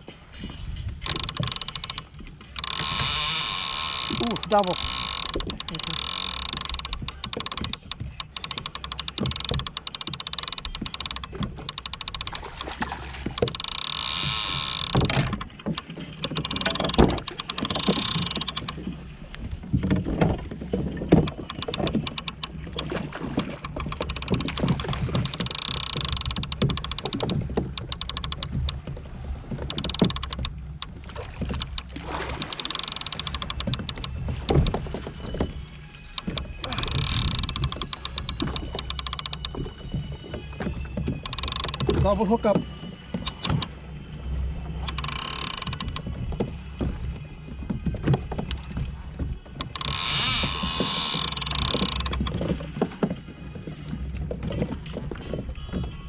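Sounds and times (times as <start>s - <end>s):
water moving against kayak: 0.0s - 56.0s
clicks and knocks of tackle: 1.0s - 18.8s, 19.7s - 39.7s, 41.2s - 42.3s.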